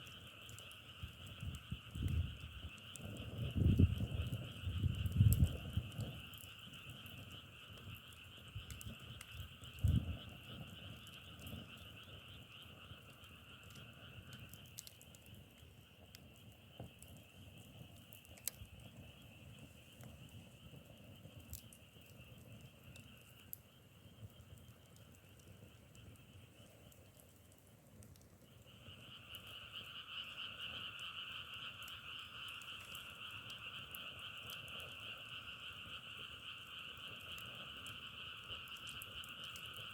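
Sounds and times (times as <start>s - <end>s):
frog chorus trilling: 0.4s - 15.9s, 28.5s - 39.9s.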